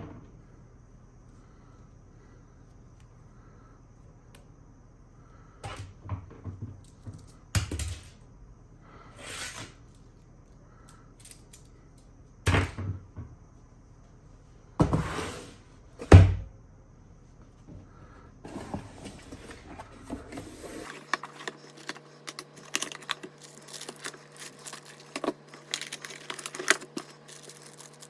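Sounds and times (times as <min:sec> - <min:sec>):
short rustling: 0:20.4 - 0:28.0.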